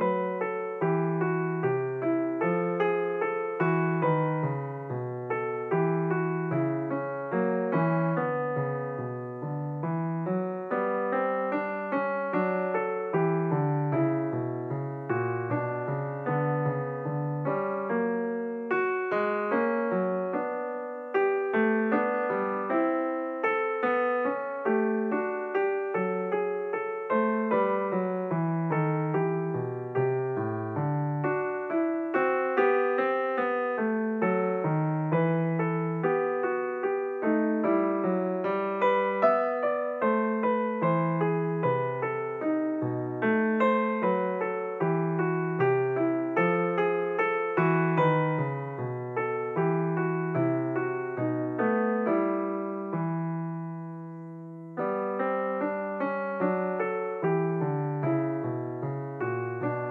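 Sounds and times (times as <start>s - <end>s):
piano-like keyboard music: 0.0s - 59.9s.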